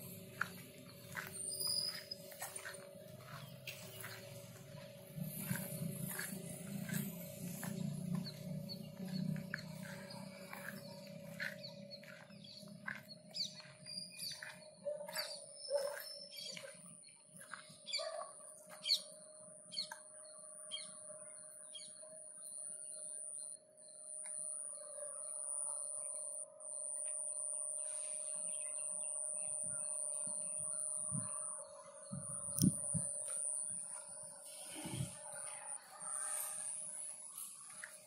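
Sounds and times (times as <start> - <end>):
birds chirping: 0.0 - 20.1
low steady hum: 0.0 - 21.5
high-pitched insect whine: 0.0 - 38.0.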